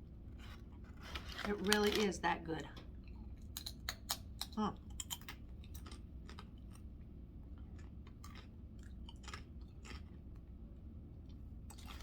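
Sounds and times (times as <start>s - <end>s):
steady low hum: 0.0s - 12.0s
person chewing food: 2.8s - 12.0s.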